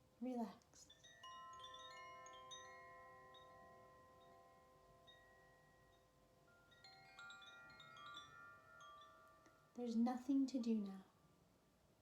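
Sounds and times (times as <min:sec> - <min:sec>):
metal chimes ringing: 0:00.9 - 0:10.0.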